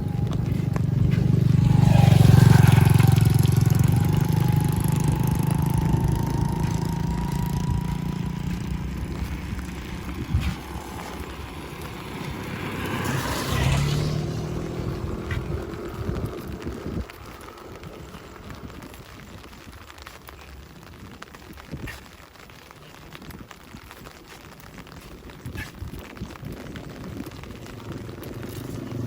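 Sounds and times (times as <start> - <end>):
vehicle driving past: 0.0 - 18.8.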